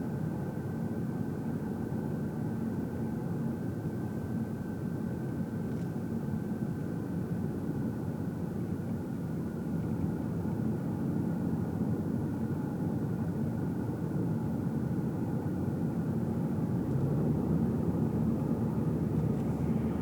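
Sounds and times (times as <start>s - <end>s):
faint steady whine: 0.0s - 20.0s
engine and tyre rumble: 14.1s - 20.0s.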